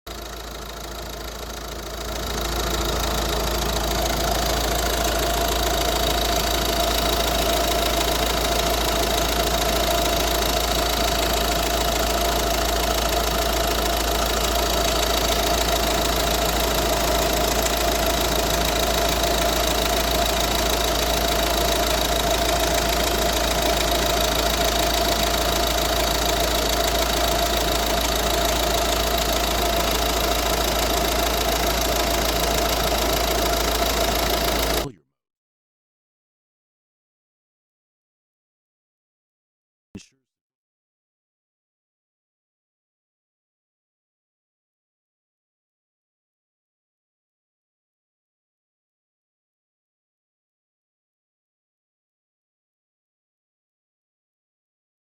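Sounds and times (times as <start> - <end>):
car engine idling with whine: 0.1 - 34.9.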